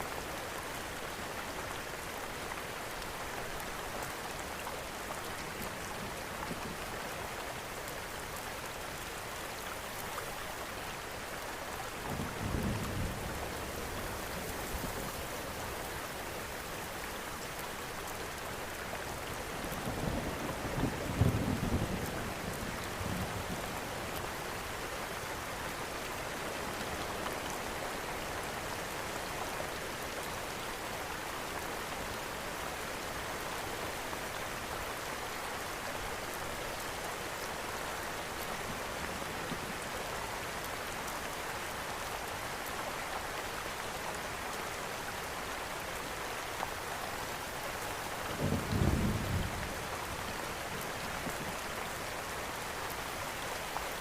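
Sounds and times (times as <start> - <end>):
steady rain falling: 0.0 - 54.0
low rumble of thunder: 48.4 - 51.6.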